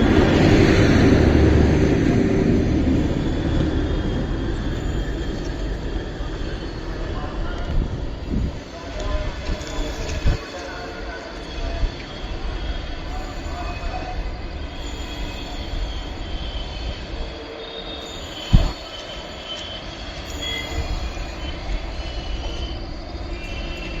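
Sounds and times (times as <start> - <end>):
train coaches rumbling on rails: 0.0 - 24.0
wheel squeal: 11.8 - 24.0.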